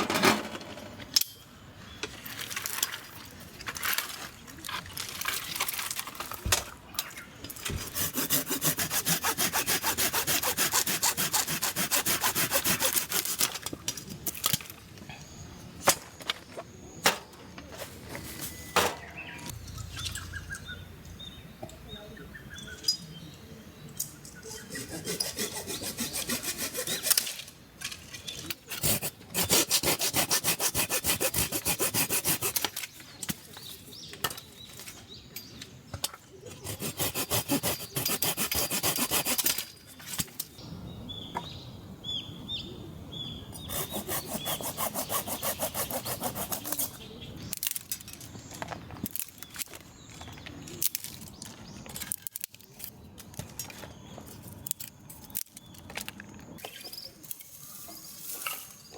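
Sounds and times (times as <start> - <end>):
hand saw cutting wood: 7.6 - 13.7, 24.6 - 27.5, 28.6 - 32.8, 36.5 - 39.7, 43.6 - 47.0.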